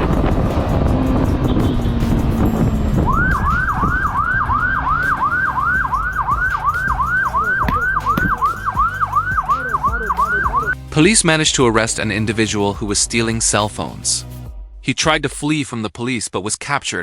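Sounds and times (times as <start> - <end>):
vehicle and wind rumble: 0.0 - 10.8
police siren yelping: 2.9 - 10.8.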